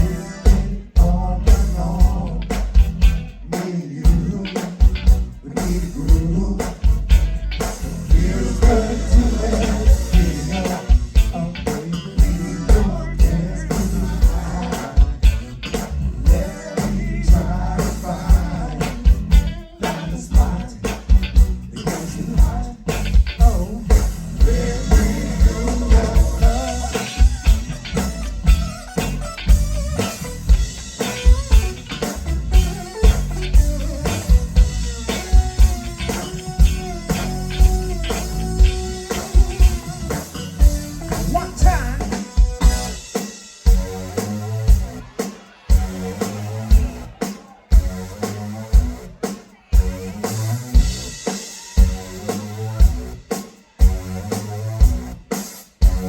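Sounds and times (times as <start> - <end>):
person singing: 0.0 - 2.7, 3.5 - 4.8, 8.1 - 21.1, 21.8 - 29.2, 40.9 - 43.2
live funk band playing: 0.0 - 56.0.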